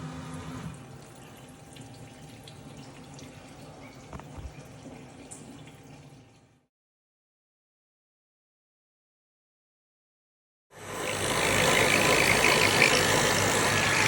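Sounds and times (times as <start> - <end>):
machine motor hum: 10.8 - 14.0.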